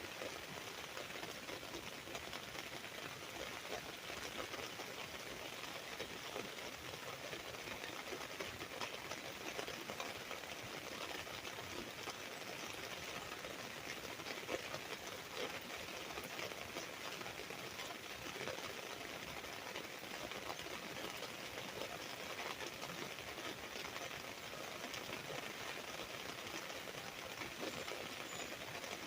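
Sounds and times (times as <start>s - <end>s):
rain falling on an umbrella: 0.0s - 29.0s.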